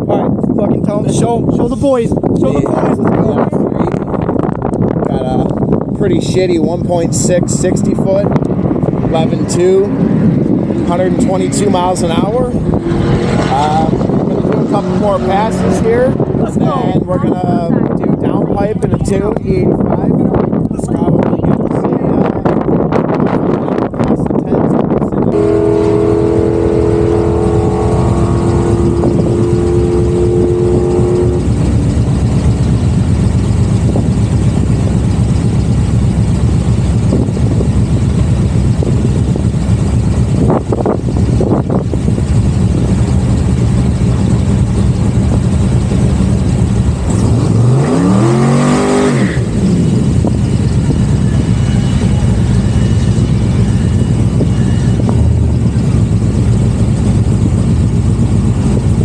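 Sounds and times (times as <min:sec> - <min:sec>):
car engine running loudly: 0:00.0 - 0:59.0
engine revving sharply: 0:07.1 - 0:17.5, 0:25.3 - 0:31.8, 0:46.9 - 0:55.8
steady two-note tone: 0:25.3 - 0:32.1, 0:49.9 - 0:56.7.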